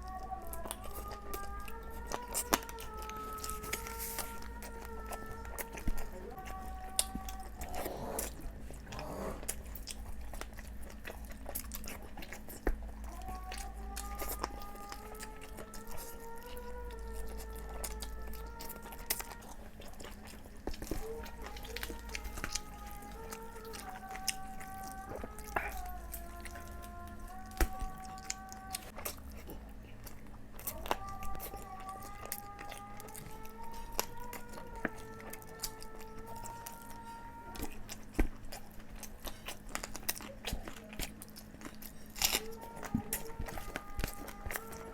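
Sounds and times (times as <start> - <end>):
close-up chewing and biting: 0.0 - 44.9
steady low hum: 0.0 - 44.9.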